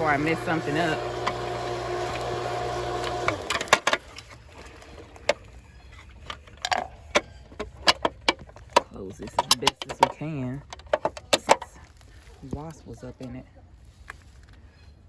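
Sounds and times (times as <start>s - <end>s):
pool pump motor humming: 0.0s - 7.6s
scattered clicks and knocks: 6.3s - 11.8s.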